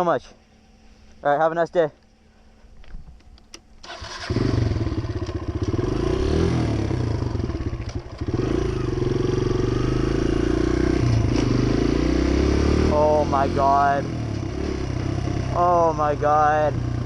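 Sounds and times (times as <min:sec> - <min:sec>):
dirt bike engine revving: 0:03.9 - 0:17.0.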